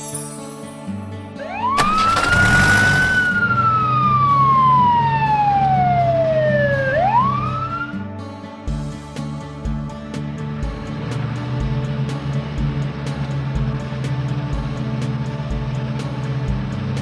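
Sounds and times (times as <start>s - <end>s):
quiet background music: 0.0s - 17.0s
wailing siren: 1.4s - 8.1s.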